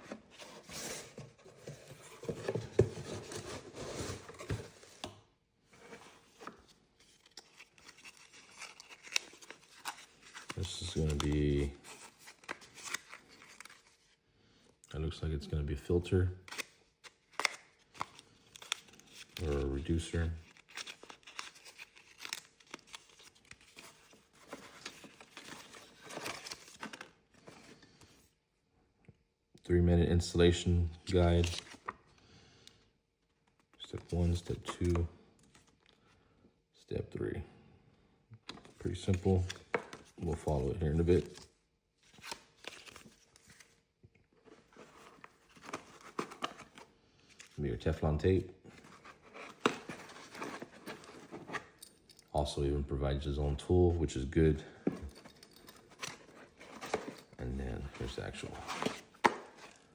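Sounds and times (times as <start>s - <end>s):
packaging rustling: 0.0s - 5.1s, 5.8s - 14.2s, 16.5s - 19.7s, 20.4s - 27.8s, 44.4s - 47.6s, 48.7s - 52.2s, 54.9s - 59.9s.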